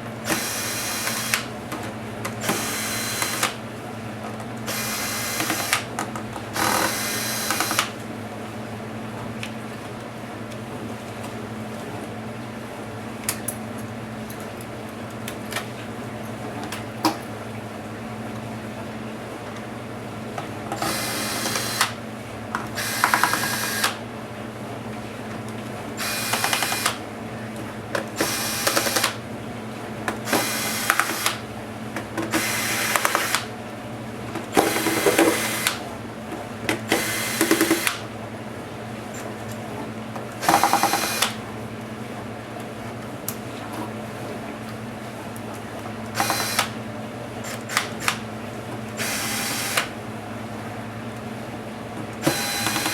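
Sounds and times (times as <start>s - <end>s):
electric screwdriver whirring: 0.3s - 1.5s, 2.4s - 3.6s, 4.7s - 5.9s, 6.6s - 8.0s, 20.8s - 22.0s, 22.8s - 24.0s, 26.0s - 27.0s, 28.2s - 29.2s, 30.3s - 31.4s, 32.3s - 33.5s, 34.6s - 35.8s, 36.9s - 38.0s, 40.4s - 41.4s, 46.2s - 46.8s, 47.4s - 48.2s, 49.0s - 49.9s, 52.2s - 52.9s.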